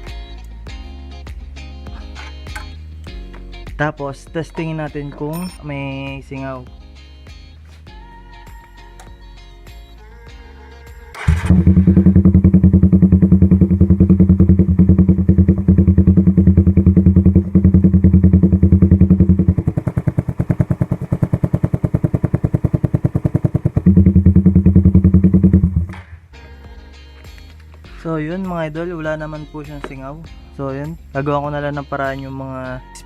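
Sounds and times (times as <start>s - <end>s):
motorcycle engine starting and running: 11.1s - 26.2s.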